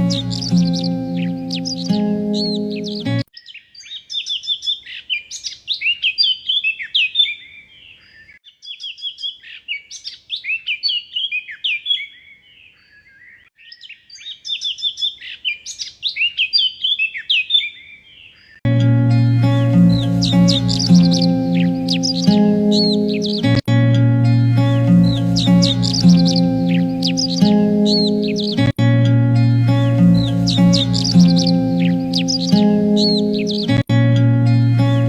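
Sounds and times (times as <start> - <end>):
music track: 0.0 - 3.3, 18.7 - 35.0
songbird singing: 0.0 - 35.0.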